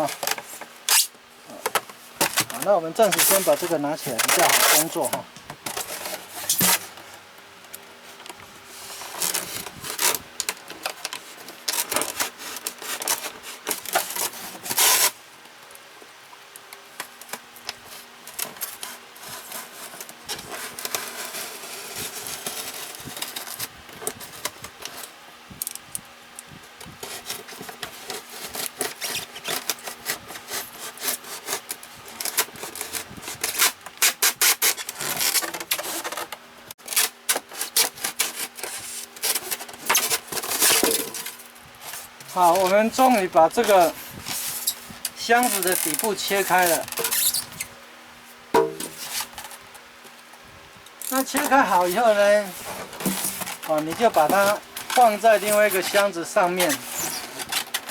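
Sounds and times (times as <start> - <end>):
knife sawing through styrofoam: 2.2 - 5.2, 12.1 - 15.2, 27.0 - 36.1, 36.9 - 41.0, 45.4 - 47.6, 51.2 - 57.9.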